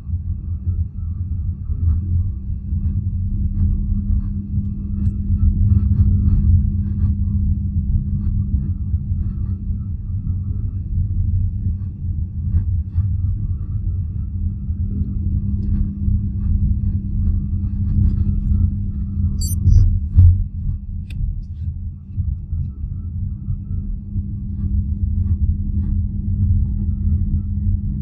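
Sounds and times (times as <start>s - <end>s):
brief high squeak: 19.4s - 19.8s.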